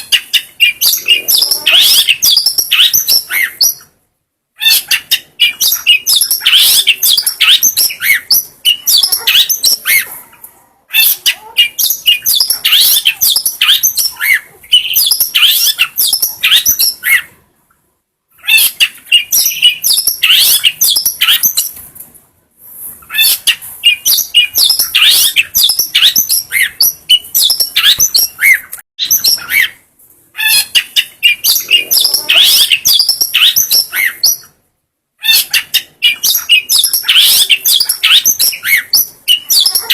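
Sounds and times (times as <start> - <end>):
bird singing chattering song: 0.0 - 4.0, 4.6 - 10.2, 10.9 - 17.3, 18.4 - 21.8, 23.0 - 34.6, 35.2 - 39.9.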